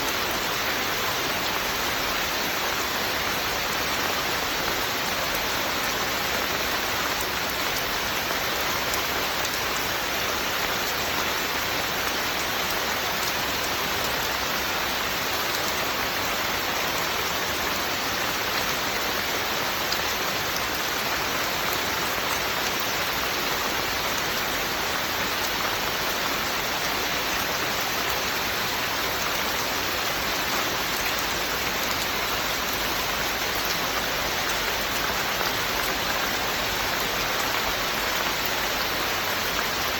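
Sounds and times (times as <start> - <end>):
steady rain falling: 0.0 - 39.9
raindrops pattering on surfaces: 0.1 - 39.9.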